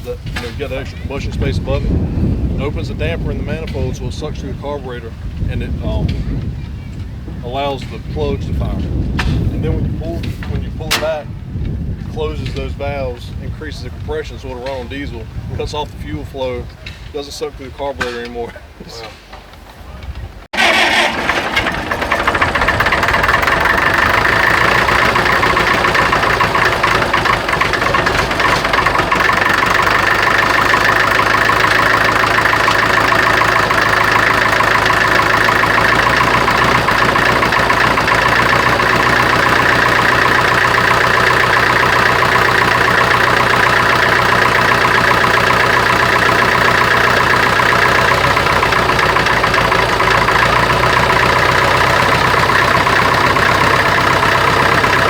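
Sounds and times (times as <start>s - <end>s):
tractor engine running loudly: 20.6s - 55.0s.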